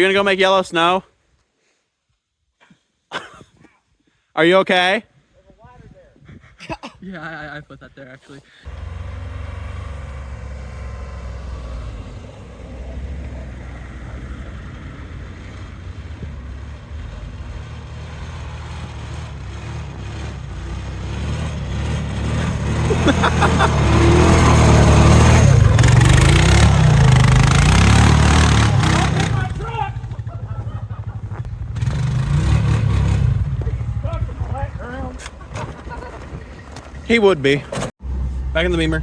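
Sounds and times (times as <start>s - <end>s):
car engine revving: 8.7s - 30.4s, 31.1s - 34.6s.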